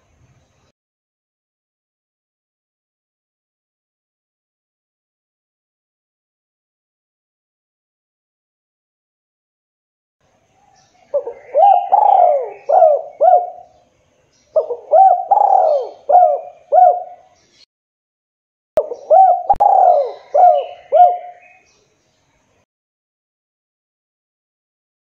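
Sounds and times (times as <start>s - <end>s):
dove cooing: 11.1s - 13.7s, 14.6s - 17.4s, 18.8s - 21.6s.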